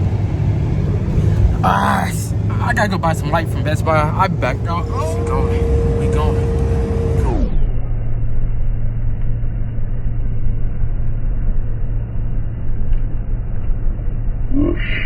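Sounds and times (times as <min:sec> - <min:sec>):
car engine and road drone: 0:00.0 - 0:15.0.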